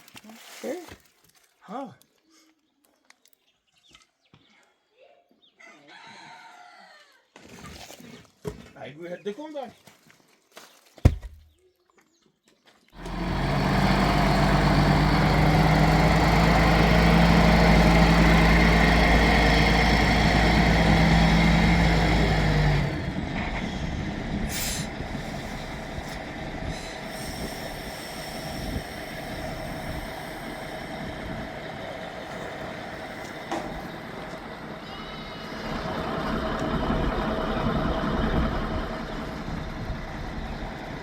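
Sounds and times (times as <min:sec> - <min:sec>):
motor engine humming: 0:13.0 - 0:41.0.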